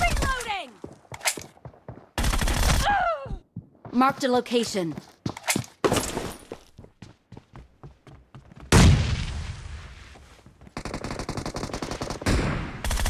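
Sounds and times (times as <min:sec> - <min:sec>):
rapid automatic fire: 0:10.8 - 0:13.0.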